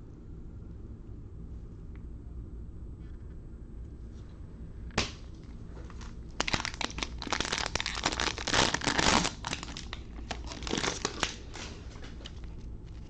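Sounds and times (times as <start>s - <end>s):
plastic wrapper tearing and crinkling: 6.0s - 13.0s.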